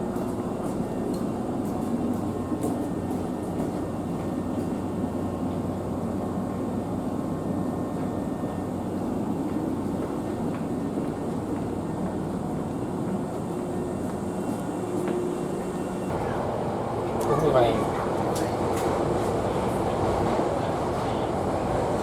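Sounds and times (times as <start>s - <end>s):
electric train wheels rumbling: 9.5s - 22.0s.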